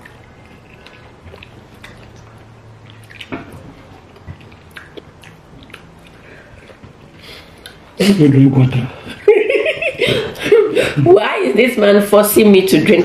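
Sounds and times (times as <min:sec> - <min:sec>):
mouth smacks: 0:00.0 - 0:07.9
people chewing food: 0:00.0 - 0:11.0.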